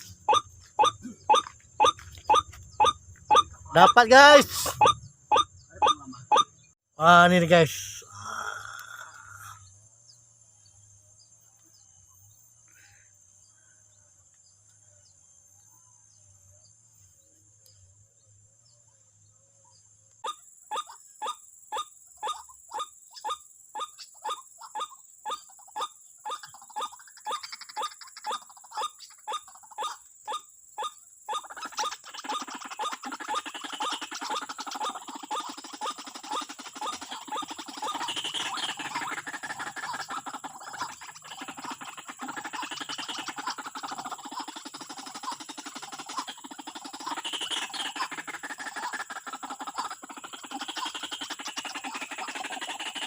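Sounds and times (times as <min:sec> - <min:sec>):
bird harsh wak calls: 0:00.0 - 0:06.6, 0:22.2 - 0:53.0.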